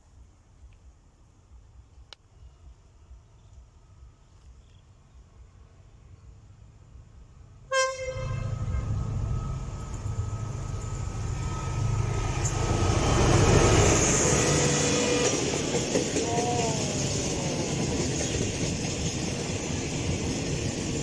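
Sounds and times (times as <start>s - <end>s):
train rumble: 0.1s - 21.0s
locomotive horn blast: 7.7s - 9.4s.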